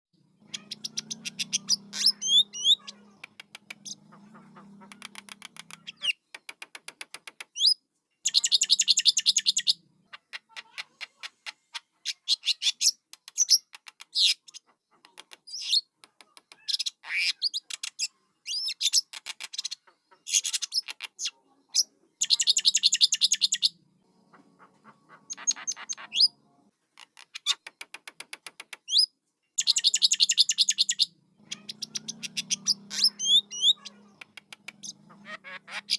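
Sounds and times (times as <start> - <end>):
bird chicks chattering: 0.4 - 15.9, 16.5 - 35.9.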